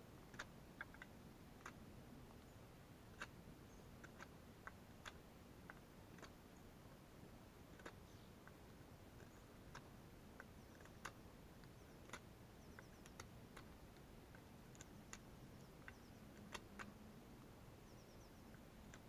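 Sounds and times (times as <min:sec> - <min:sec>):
faint sharp clicks: 0:07.6 - 0:19.0
tiny high ticks: 0:07.6 - 0:19.0.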